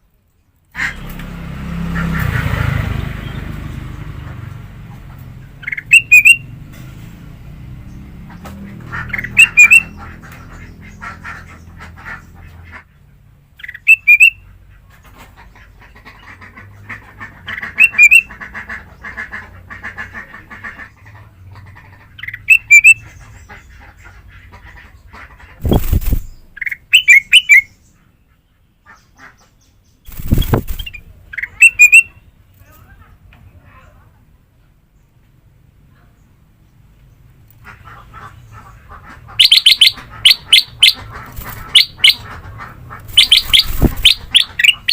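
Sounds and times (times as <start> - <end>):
bird chattering: 5.1 - 6.4, 8.3 - 12.8, 13.6 - 14.8, 15.4 - 28.1, 28.8 - 32.2, 37.6 - 44.9
bird whistling phrases: 13.7 - 14.4, 26.6 - 27.7, 30.3 - 32.1, 43.2 - 44.9.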